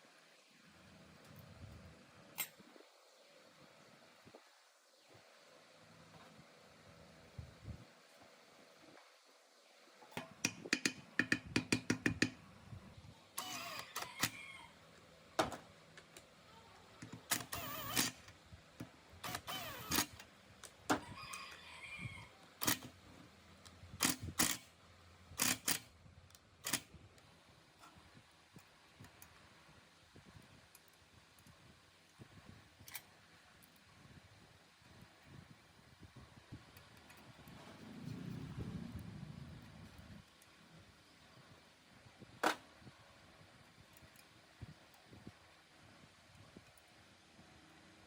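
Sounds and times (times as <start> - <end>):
metal parts clicking: 25.4 - 25.9.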